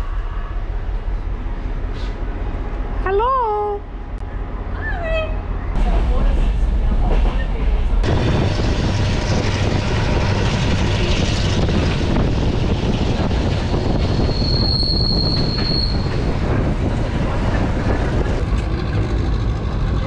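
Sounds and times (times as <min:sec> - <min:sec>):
train wheels rumbling: 0:03.8 - 0:20.0
high wheel squeal: 0:13.9 - 0:16.3.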